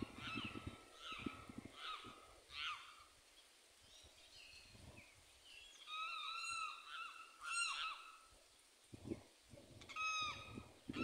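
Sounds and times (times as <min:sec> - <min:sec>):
birds calling: 0:00.0 - 0:08.3.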